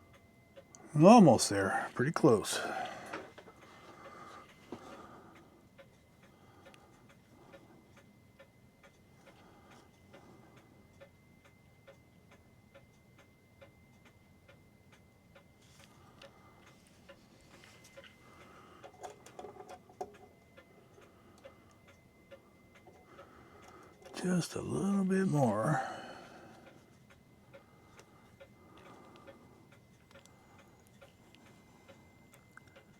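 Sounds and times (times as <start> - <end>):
clock ticking: 18.0 - 32.9.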